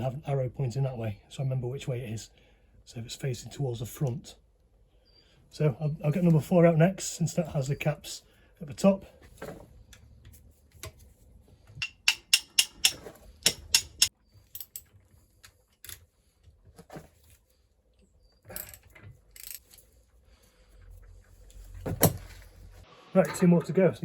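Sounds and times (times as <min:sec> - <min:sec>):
hand tools clicking on metal: 0:11.8 - 0:14.9.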